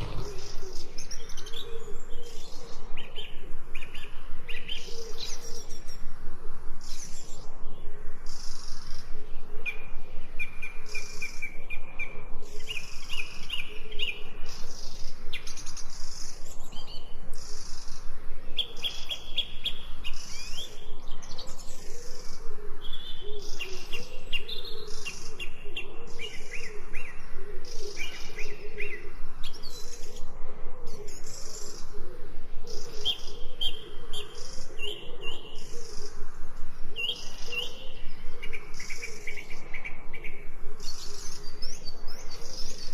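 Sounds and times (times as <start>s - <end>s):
low bird warbling: 0.0s - 2.5s
birds chirping and singing: 0.0s - 6.1s, 6.8s - 42.9s.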